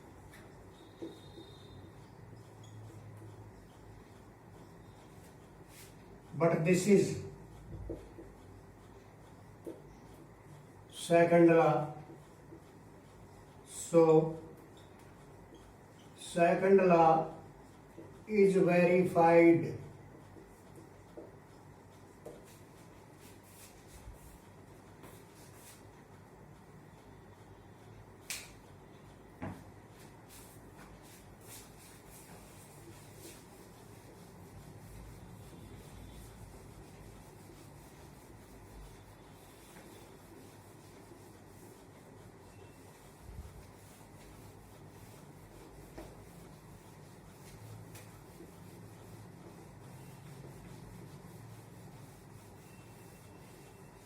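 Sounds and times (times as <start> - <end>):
scratching of writing strokes: 0.0 - 54.0
sharp click: 28.2 - 28.6.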